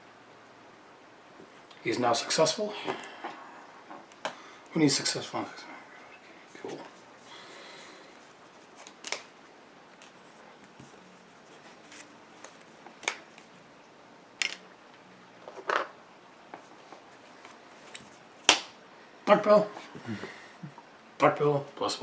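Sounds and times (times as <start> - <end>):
cards snapping on table: 8.8 - 9.3, 12.4 - 13.5.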